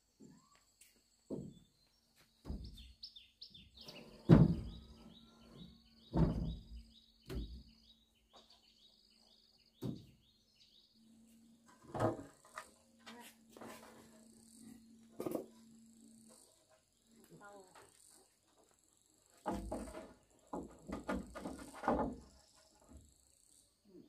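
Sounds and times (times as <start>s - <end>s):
small bird chirping: 1.6s - 11.0s.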